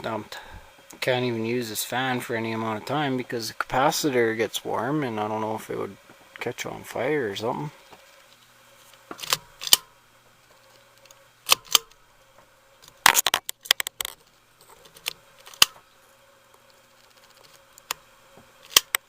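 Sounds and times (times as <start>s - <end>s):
faint steady hum: 0.0s - 19.0s
plastic parts clicking and clacking: 18.6s - 19.0s.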